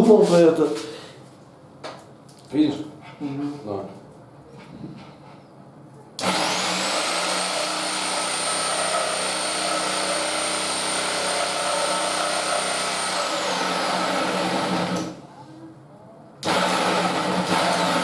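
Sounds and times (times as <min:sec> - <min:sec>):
power tool motor whine: 0:06.2 - 0:15.2, 0:16.4 - 0:18.0.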